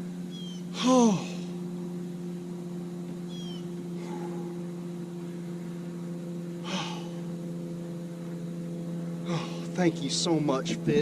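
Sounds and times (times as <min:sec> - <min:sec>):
low droning hum: 0:00.0 - 0:11.0
faint high chirp: 0:00.3 - 0:00.7, 0:03.3 - 0:03.7.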